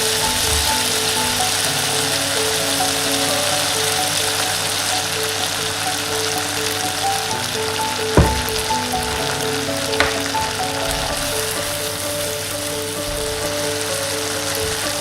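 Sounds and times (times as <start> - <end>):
food sizzling in frying pan: 0.0 - 15.0
sharp knocks: 8.2 - 9.3, 10.0 - 11.5.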